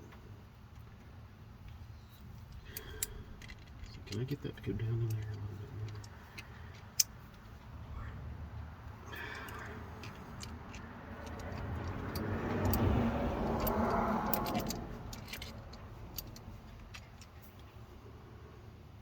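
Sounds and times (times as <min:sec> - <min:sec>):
hand tools clinking on metal: 0:02.4 - 0:07.2, 0:09.1 - 0:17.5.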